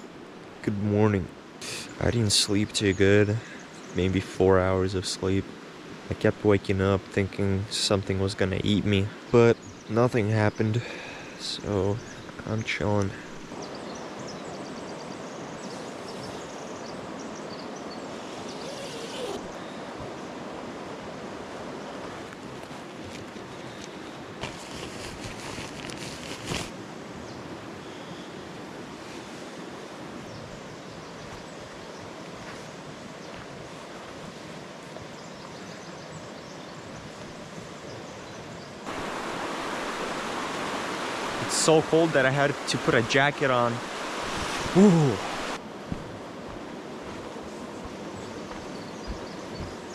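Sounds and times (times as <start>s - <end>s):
river water flowing: 0.0s - 49.9s
river water rushing: 26.4s - 49.9s.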